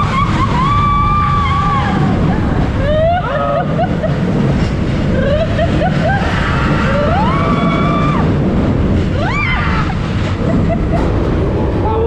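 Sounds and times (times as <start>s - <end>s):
riders screaming: 0.0s - 3.8s, 5.2s - 8.4s, 9.1s - 10.4s
roller coaster train rumble: 0.0s - 12.0s
rushing wind: 0.0s - 12.0s.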